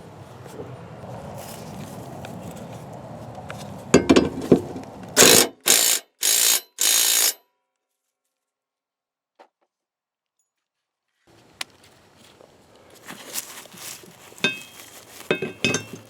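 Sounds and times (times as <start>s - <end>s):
tool knocking against metal: 4.0s - 5.6s, 14.5s - 14.7s, 15.3s - 16.0s
ratchet wrench clicking: 5.2s - 7.4s.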